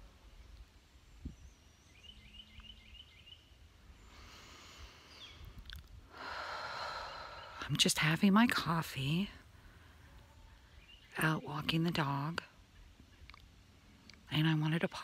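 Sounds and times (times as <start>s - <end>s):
small bird singing: 0.3s - 4.3s, 5.0s - 5.7s, 9.9s - 15.0s.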